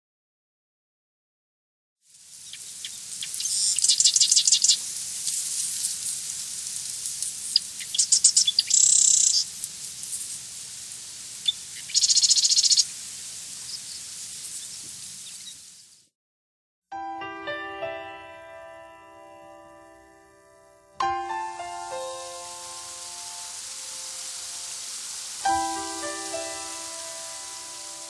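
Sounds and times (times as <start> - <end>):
steady high hiss: 2.1 - 16.1, 20.0 - 28.0
birds chirping and trilling: 2.4 - 4.8, 7.3 - 9.5, 11.4 - 12.8.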